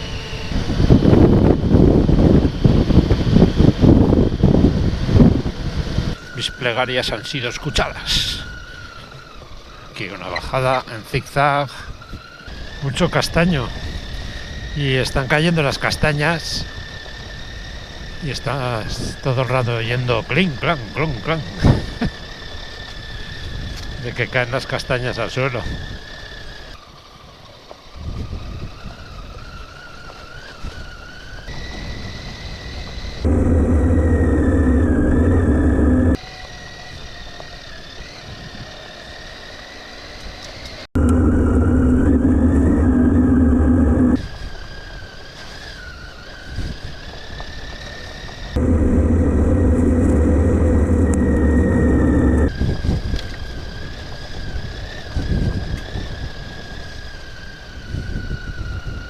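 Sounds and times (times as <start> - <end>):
motorcycle high whine: 0.0 - 7.6, 31.0 - 45.0, 47.6 - 59.0
road noise: 31.3 - 36.2, 39.6 - 44.3, 47.8 - 52.7
loud low rumble: 33.2 - 36.2, 41.0 - 44.2, 48.6 - 52.5
motorcycle engine running: 33.2 - 36.2, 41.0 - 44.2, 48.6 - 52.5.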